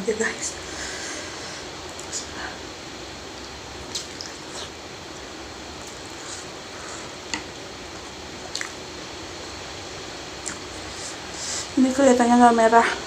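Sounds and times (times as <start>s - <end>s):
steady background hiss: 0.0s - 13.0s
wet mouth clicks while chewing: 8.5s - 8.8s.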